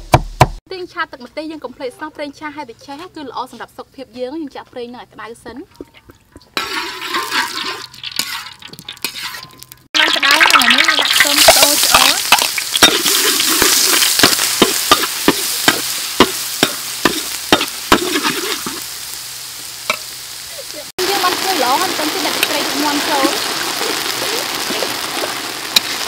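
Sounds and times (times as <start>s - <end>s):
garlic sizzling in hot oil: 6.4s - 26.0s
metal spatula scraping a wok: 6.6s - 9.9s, 11.2s - 18.8s.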